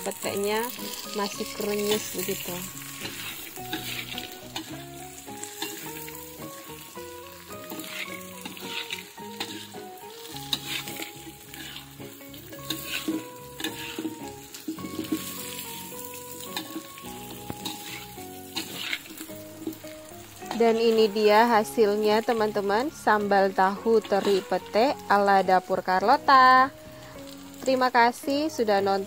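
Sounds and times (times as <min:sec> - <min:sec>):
food sizzling in oil: 0:00.0 - 0:29.0
metal spatula scraping pan: 0:00.7 - 0:06.6, 0:07.5 - 0:21.1, 0:23.8 - 0:24.6.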